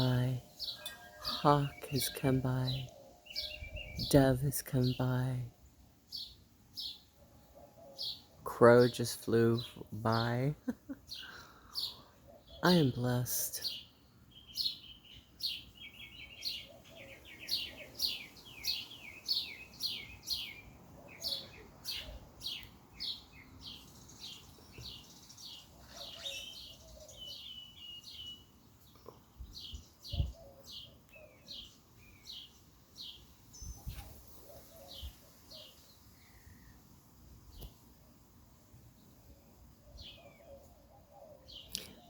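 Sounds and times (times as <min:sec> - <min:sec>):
small birds chirping: 0:00.0 - 0:42.0
lower bird calls: 0:14.5 - 0:36.9.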